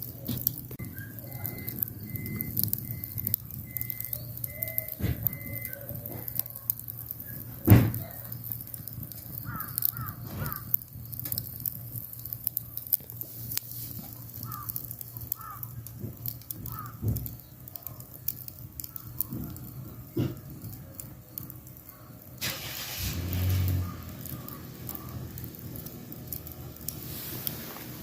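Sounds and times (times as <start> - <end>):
crows cawing: 9.4 - 10.8, 14.4 - 15.8, 16.6 - 17.2, 23.8 - 25.1.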